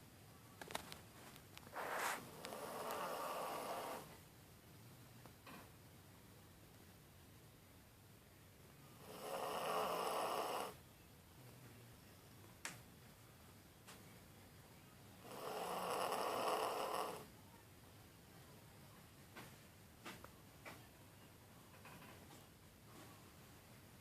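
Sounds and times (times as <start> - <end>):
dog snoring: 1.9 - 4.1, 9.0 - 10.8, 15.2 - 17.3.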